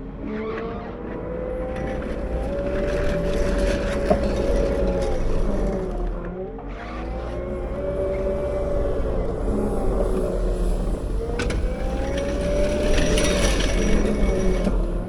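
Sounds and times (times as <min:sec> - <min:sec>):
wheel loader diesel engine revving: 0:01.2 - 0:15.0.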